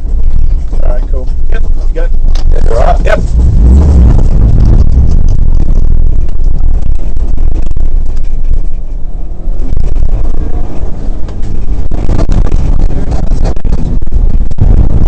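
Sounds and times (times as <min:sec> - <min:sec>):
rally car engine revving: 0:01.6 - 0:08.7.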